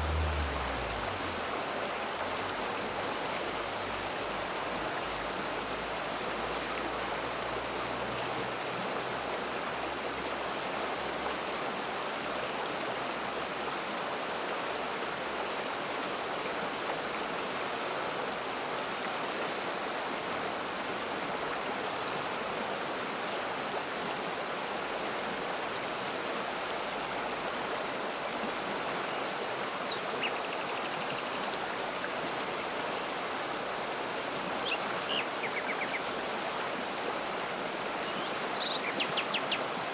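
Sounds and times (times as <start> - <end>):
waterfall rushing: 0.0 - 6.7, 31.3 - 39.9.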